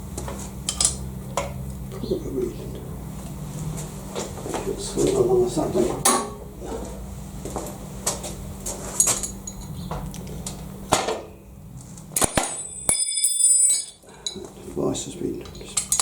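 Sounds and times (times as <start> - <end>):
metal piece ringing: 6.0 - 6.4, 9.0 - 9.8, 12.2 - 14.4
metallic clinks and knocks: 9.0 - 9.9, 12.2 - 14.5, 15.4 - 16.0.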